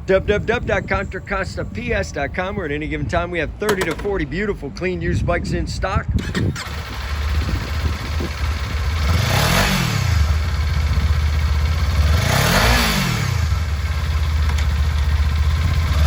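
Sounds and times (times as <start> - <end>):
motorcycle engine idling and revving: 3.7 - 4.2, 6.2 - 16.0.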